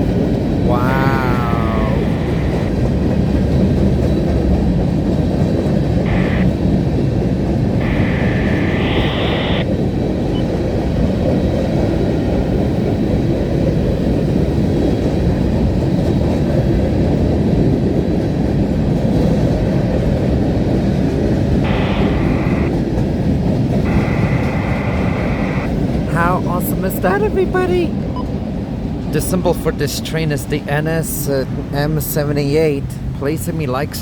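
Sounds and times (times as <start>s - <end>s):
freight train wheels rumbling on rail: 0.0s - 9.0s, 9.6s - 22.1s, 22.7s - 34.0s.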